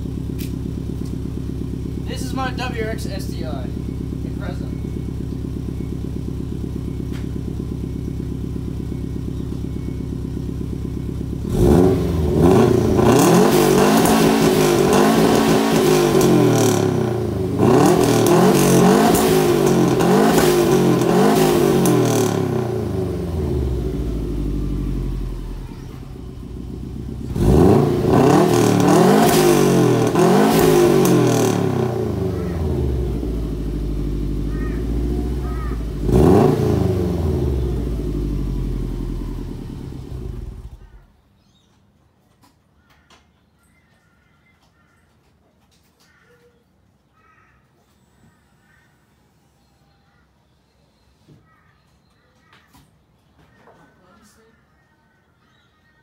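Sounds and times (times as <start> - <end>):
car engine idling and revving: 0.0 - 41.1.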